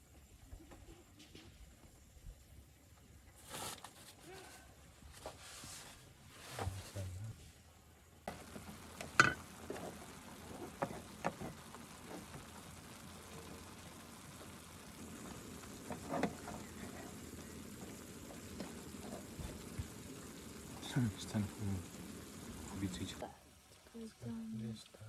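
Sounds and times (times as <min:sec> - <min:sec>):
food frying and sizzling: 0:07.6 - 0:25.0.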